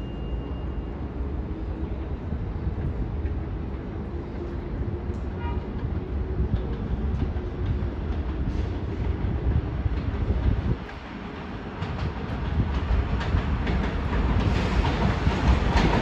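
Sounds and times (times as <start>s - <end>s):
subway train wheels rumbling: 0.0s - 16.0s
train clatter: 5.1s - 16.0s.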